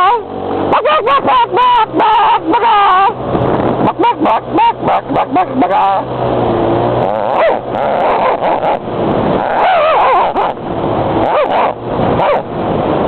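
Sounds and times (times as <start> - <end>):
dog yipping and whining: 0.0 - 3.2, 3.8 - 6.0, 7.0 - 8.8, 9.4 - 10.6, 11.2 - 12.5
riding noise rushing: 0.0 - 13.0.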